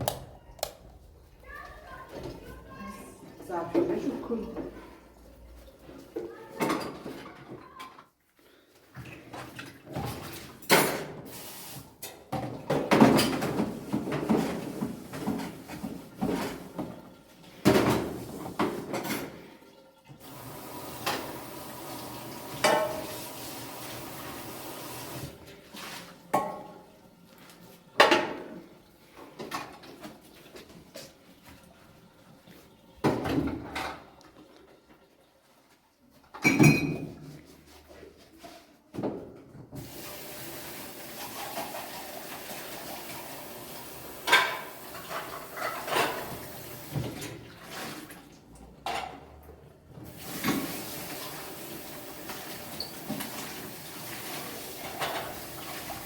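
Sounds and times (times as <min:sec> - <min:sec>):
dishes and pots clattering: 0:06.6 - 0:07.8, 0:09.1 - 0:11.3, 0:12.0 - 0:19.5, 0:22.5 - 0:23.1, 0:26.3 - 0:26.8, 0:28.0 - 0:28.7, 0:36.3 - 0:37.4, 0:44.2 - 0:46.5, 0:54.2 - 0:56.0.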